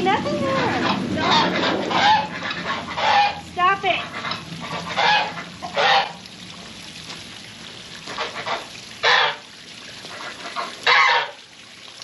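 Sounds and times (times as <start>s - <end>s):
goose honking: 0.1s - 6.2s, 8.1s - 9.4s, 10.1s - 11.4s.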